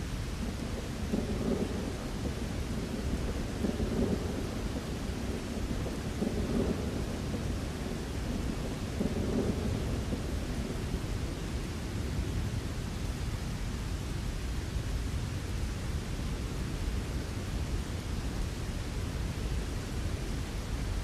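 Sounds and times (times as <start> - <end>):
steady rain: 0.0 - 21.0
thunder rumbling: 0.2 - 13.2.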